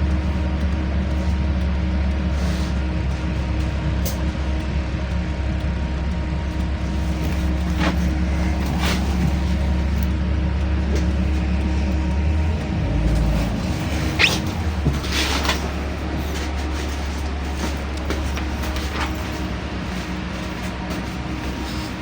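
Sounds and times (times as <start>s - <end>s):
bus engine and road drone: 0.0s - 22.0s.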